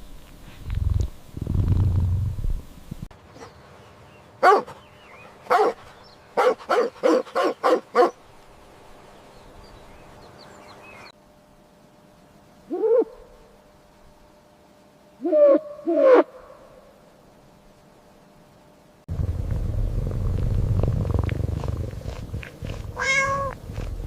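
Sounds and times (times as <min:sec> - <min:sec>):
low rumble: 0:00.7 - 0:03.1, 0:19.1 - 0:24.0
dog barking: 0:04.4 - 0:04.8, 0:05.5 - 0:05.8, 0:06.4 - 0:08.2.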